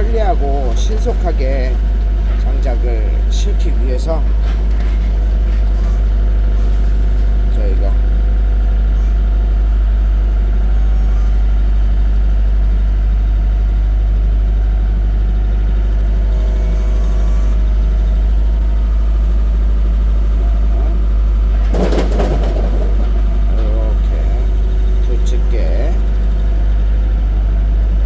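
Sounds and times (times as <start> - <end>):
noisy clatter: 0.0 - 10.2, 16.3 - 28.0
engine idling: 0.0 - 28.0.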